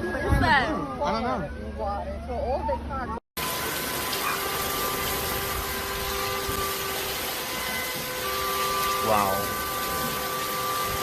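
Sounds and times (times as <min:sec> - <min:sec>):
water rushing: 0:03.4 - 0:11.0.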